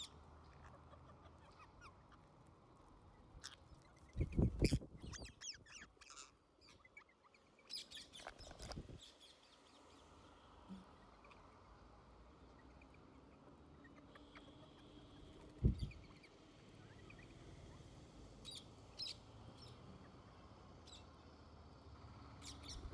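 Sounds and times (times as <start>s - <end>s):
birds chirping: 22.4s - 22.9s.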